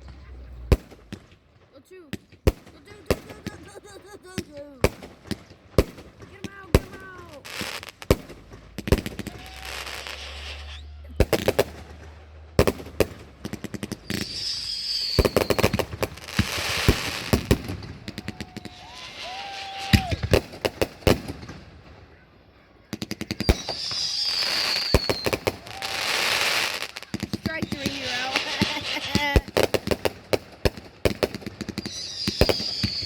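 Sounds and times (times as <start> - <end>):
firework crackling volleys: 0.0 - 22.1, 22.9 - 33.0
firework bangs: 0.0 - 33.0
high firework whistle: 6.7 - 13.2, 13.8 - 20.8, 23.3 - 29.7, 31.6 - 33.0.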